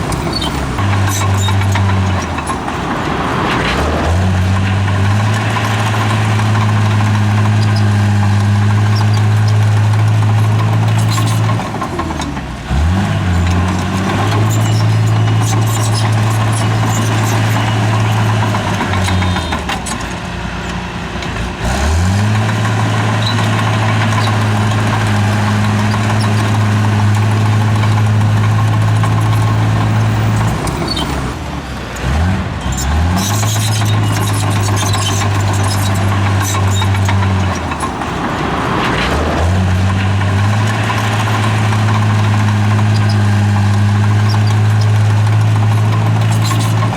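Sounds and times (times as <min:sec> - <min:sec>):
clanking: 0:00.0 - 0:07.8, 0:33.2 - 0:46.9
bulldozer diesel engine working: 0:00.0 - 0:46.9.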